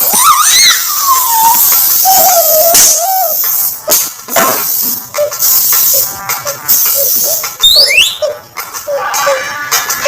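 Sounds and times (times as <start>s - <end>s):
distorted pitch-shifted voice wail: 6.0s - 10.0s.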